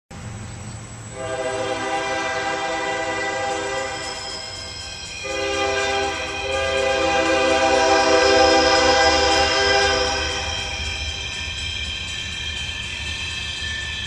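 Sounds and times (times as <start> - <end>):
low train rumble: 0.1 - 14.0
locomotive air horn: 1.2 - 4.2, 5.2 - 10.9.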